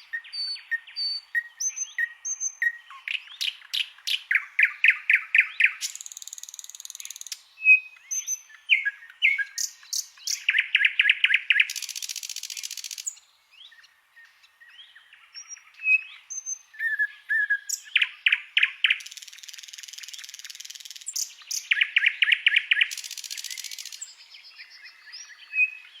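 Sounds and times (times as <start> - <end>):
songbird singing: 0.0 - 26.0.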